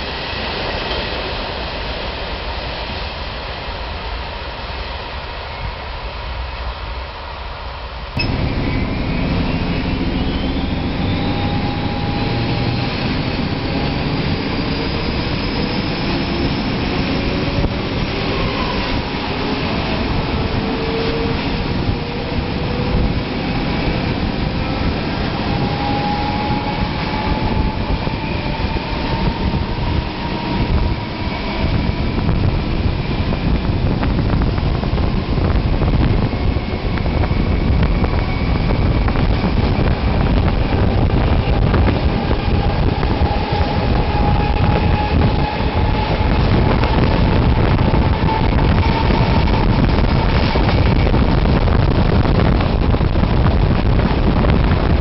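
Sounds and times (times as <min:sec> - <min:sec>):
train wheels rumbling on rail: 0:00.0 - 0:55.0
wind buffeting microphone: 0:08.1 - 0:55.0
locomotive engine rising tones: 0:08.2 - 0:55.0.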